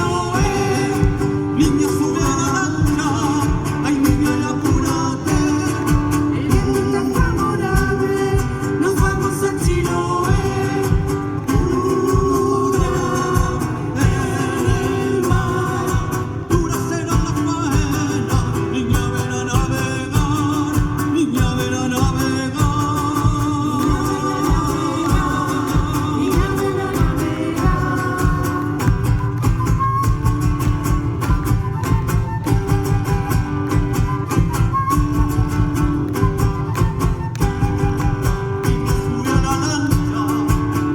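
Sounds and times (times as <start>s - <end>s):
person singing: 0.0s - 29.4s
acoustic guitar: 0.0s - 40.9s
steady beat: 22.6s - 32.1s.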